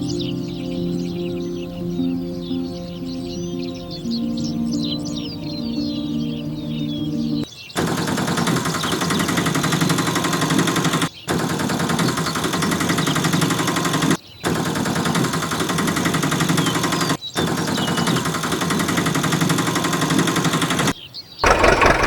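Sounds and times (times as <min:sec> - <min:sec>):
fast mechanical rattle: 0:21.4 - 0:22.0.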